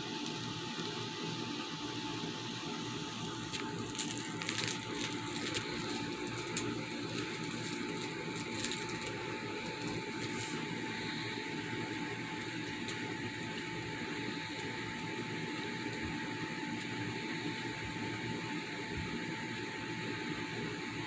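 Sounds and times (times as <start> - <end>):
electrical hum: 0.0 - 21.0
cat licking and grooming: 3.3 - 19.3.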